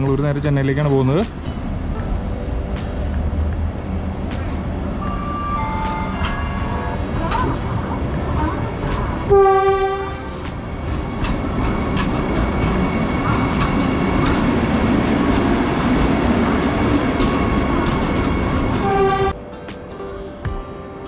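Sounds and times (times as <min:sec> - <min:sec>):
electric train rumbling: 0:00.0 - 0:20.8
train horn blast: 0:05.0 - 0:11.8, 0:18.8 - 0:19.4
wheels clicking over rail joints: 0:05.8 - 0:20.6.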